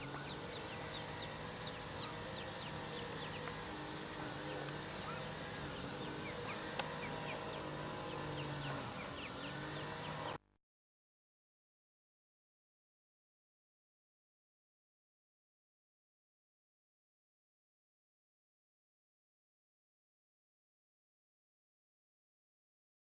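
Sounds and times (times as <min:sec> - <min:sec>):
ducklings peeping: 0:00.0 - 0:10.4
steady low hum: 0:00.0 - 0:10.4.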